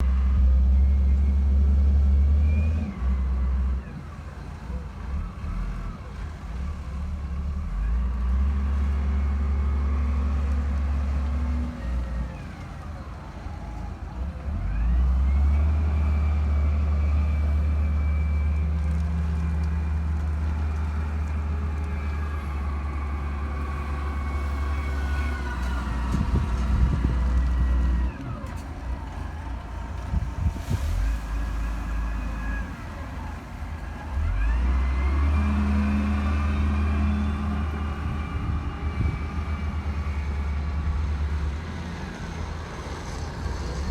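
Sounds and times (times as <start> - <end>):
backhoe engine rumbling: 0.0 - 43.9
hydraulic whine: 14.1 - 41.4.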